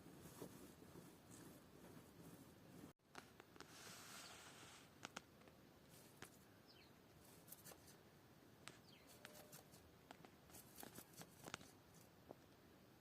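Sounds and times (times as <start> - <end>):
faint clicks and taps: 5.0 - 6.4, 10.0 - 12.6.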